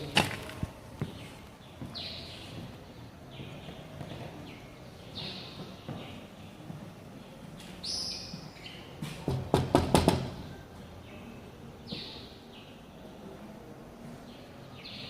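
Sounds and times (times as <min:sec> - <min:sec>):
low outdoor background: 0:00.0 - 0:15.0
sharp knocks: 0:09.0 - 0:10.4.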